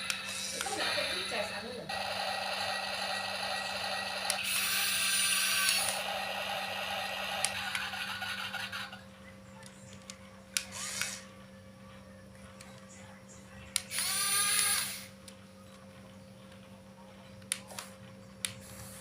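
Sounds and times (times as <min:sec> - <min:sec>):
toy excavator motors whirring: 0:00.0 - 0:09.0, 0:09.6 - 0:11.3, 0:13.8 - 0:15.4.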